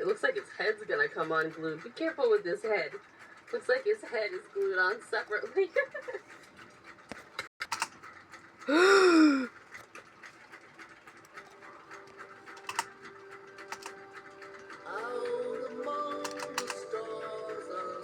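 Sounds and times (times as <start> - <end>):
toy figure clicks and taps: 12.6 - 13.0, 16.2 - 16.9.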